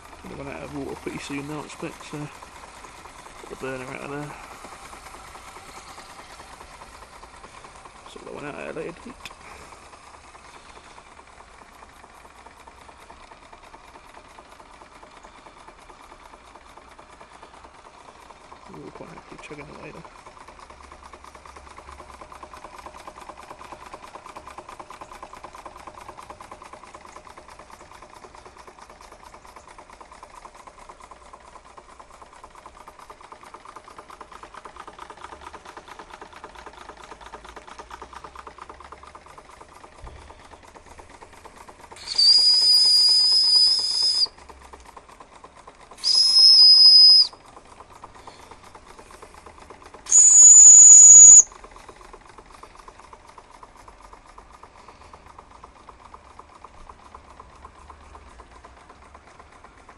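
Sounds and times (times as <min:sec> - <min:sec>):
toy steam engine chuffing: 0:00.0 - 0:59.9
high steam whistle: 0:42.0 - 0:44.3, 0:46.0 - 0:47.4, 0:50.1 - 0:51.5.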